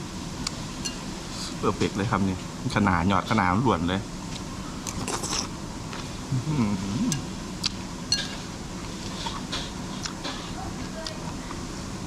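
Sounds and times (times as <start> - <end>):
restaurant room noise: 0.0 - 12.0
utensils clinking on dishes: 8.1 - 8.5.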